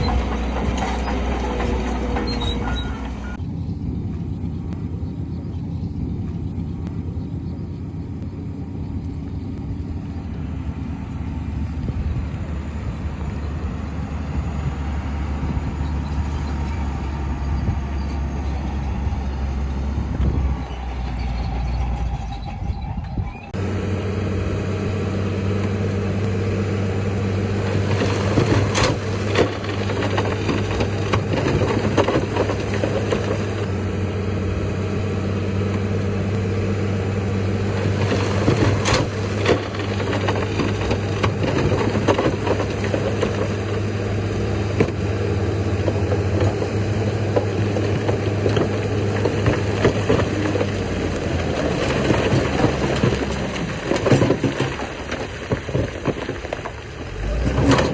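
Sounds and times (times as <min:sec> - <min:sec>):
diesel machinery engine droning: 0:00.0 - 0:57.9
crackling rattle: 0:37.7 - 0:57.9.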